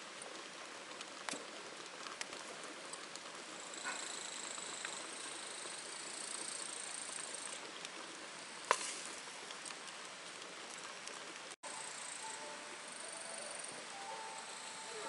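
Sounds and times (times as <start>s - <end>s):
soft patter with faint ticks: 0.0s - 15.0s
insect trilling: 3.6s - 7.6s, 11.7s - 15.0s.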